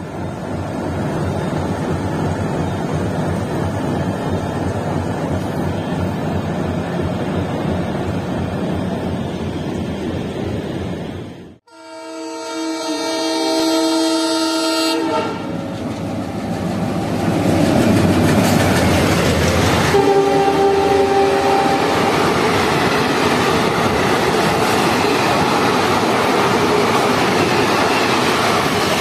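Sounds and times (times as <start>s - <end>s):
train horn: 11.7s - 15.6s, 19.9s - 22.0s.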